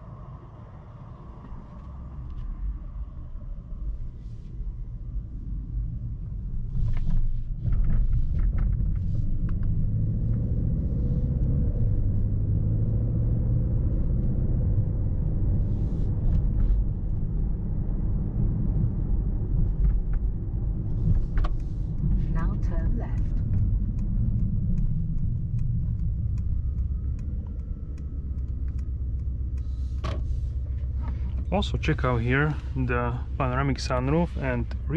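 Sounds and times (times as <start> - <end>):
car rumble from inside cabin: 1.2 - 34.9
faint clicks: 23.1 - 30.0.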